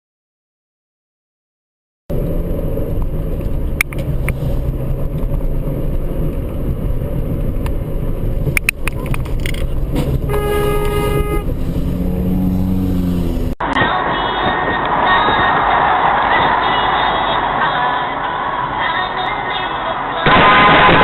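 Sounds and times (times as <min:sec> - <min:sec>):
vehicle road and engine noise: 0:02.1 - 0:21.0
car horn: 0:10.2 - 0:13.4.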